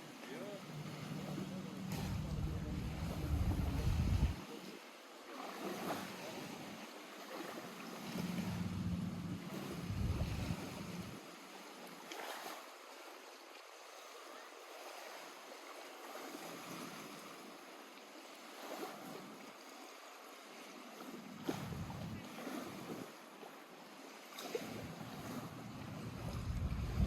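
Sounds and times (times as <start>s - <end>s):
lake waves lapping at shore: 0.0s - 27.0s
low rumble: 1.9s - 4.4s, 8.4s - 11.1s, 26.1s - 27.0s.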